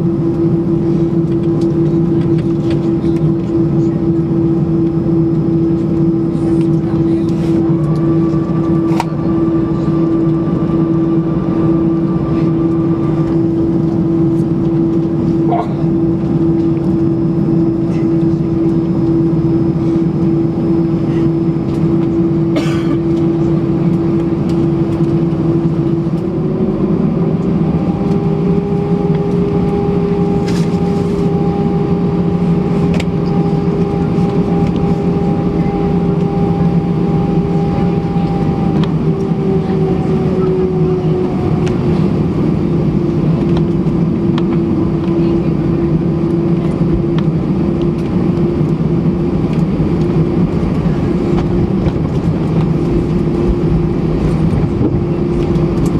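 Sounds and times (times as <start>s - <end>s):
jet engines humming in cabin: 0.0s - 55.9s.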